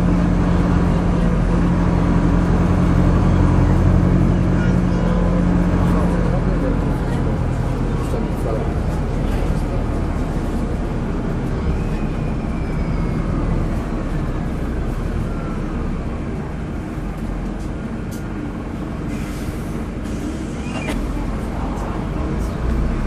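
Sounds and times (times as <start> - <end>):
bus diesel engine running: 0.0 - 23.0.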